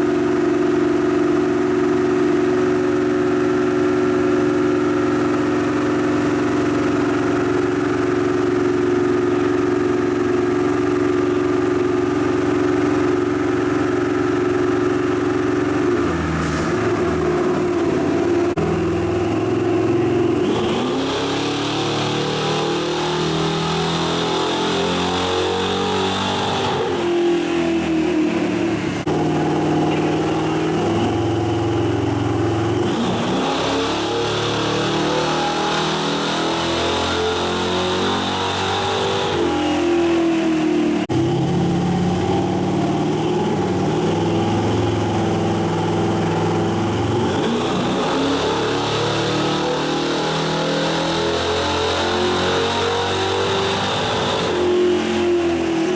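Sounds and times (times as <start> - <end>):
engine revving: 15.7 - 55.9.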